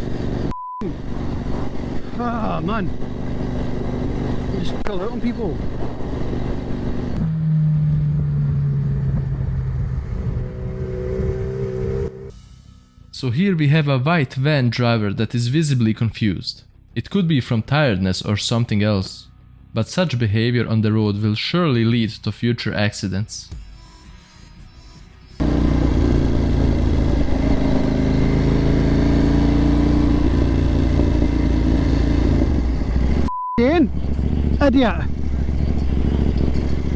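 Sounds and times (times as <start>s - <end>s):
engine humming: 0.0s - 12.3s, 25.4s - 36.9s
motorcycle engine running: 0.0s - 12.3s, 25.4s - 36.9s
road and traffic rumble: 0.0s - 12.3s, 25.4s - 36.9s.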